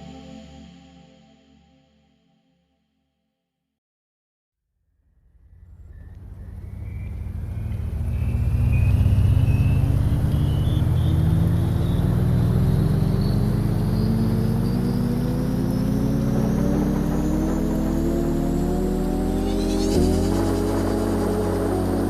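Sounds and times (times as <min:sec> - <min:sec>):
vehicle engine speeding up: 0:05.3 - 0:22.0
thin high whine: 0:13.3 - 0:22.0.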